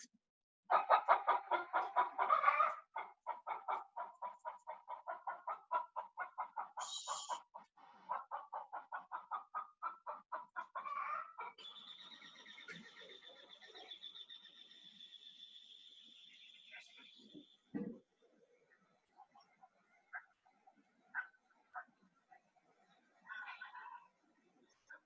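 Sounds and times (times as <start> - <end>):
hens clucking: 0.7 - 14.0, 18.6 - 22.0.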